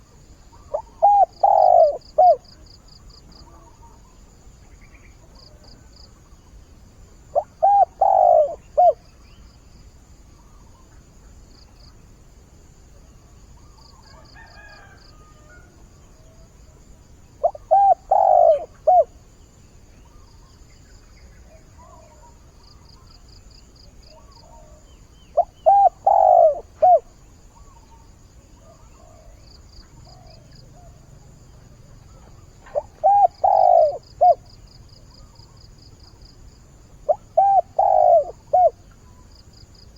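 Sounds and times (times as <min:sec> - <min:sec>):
dove cooing: 0:00.0 - 0:02.6, 0:07.3 - 0:09.0, 0:17.4 - 0:19.2, 0:25.4 - 0:27.2, 0:28.6 - 0:34.6, 0:37.0 - 0:39.2.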